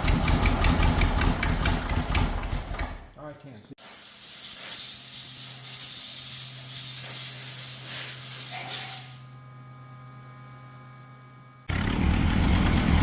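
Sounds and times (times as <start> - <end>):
spray hissing: 3.8 - 9.2.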